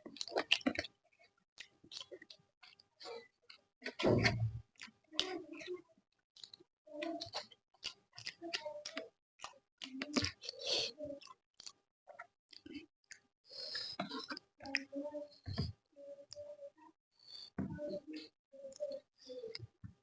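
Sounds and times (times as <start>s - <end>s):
person chewing food: 0.0s - 5.8s, 6.4s - 15.7s.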